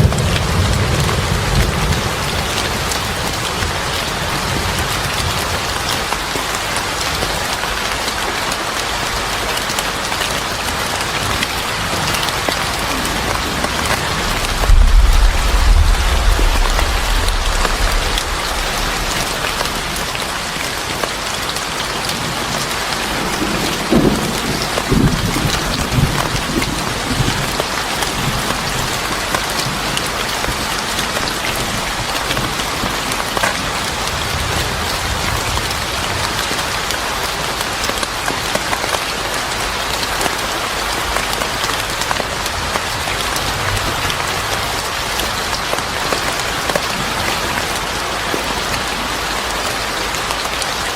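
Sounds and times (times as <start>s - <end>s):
heavy rain pouring: 0.0s - 50.9s
thunder rumble: 12.7s - 21.6s.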